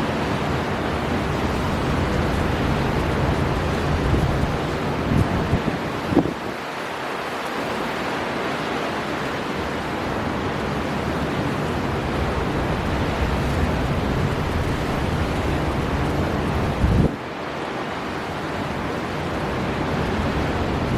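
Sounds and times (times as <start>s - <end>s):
sea surf crashing: 0.0s - 20.9s
storm wind blowing: 0.0s - 20.9s.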